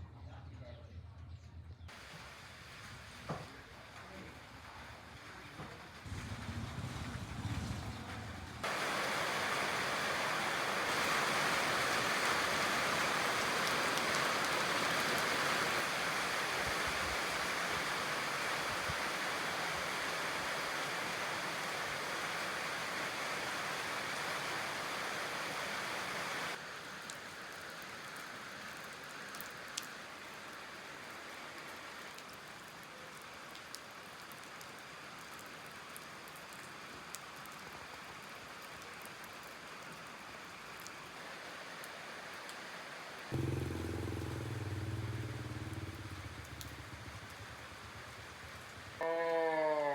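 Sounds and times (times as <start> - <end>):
steady rain: 1.9 - 49.9
raindrops ticking: 43.4 - 49.7.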